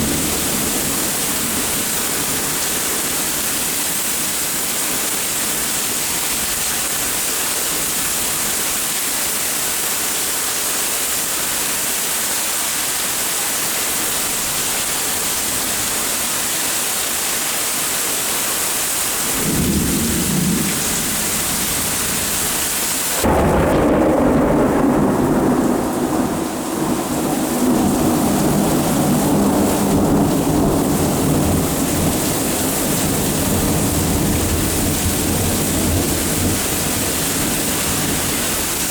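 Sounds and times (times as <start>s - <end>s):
thunder rumbling: 0.0s - 5.6s, 19.2s - 38.9s
heavy rain hissing: 0.0s - 38.9s.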